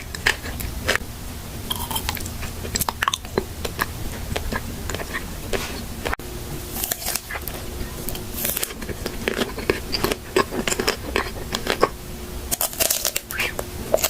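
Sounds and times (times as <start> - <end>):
close eating mouth sounds: 0.0 - 1.0, 1.7 - 14.0.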